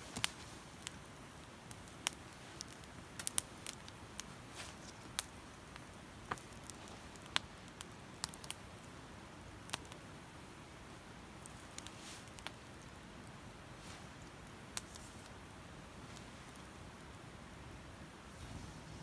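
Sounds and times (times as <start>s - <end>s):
faint steady hiss: 0.0s - 19.0s
campfire crackling and popping: 0.1s - 17.3s.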